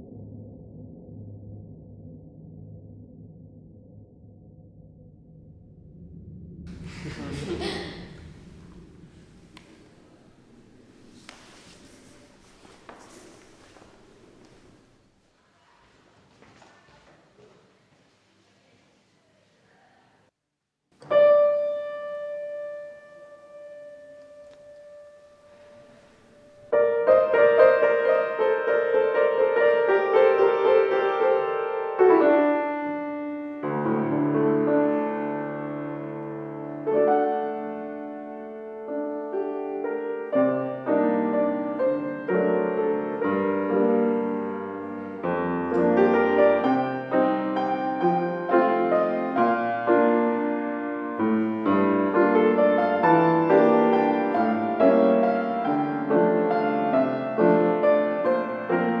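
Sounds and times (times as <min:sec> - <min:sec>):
slow piano piece: 0:06.7 - 0:15.1, 0:21.0 - 0:59.0.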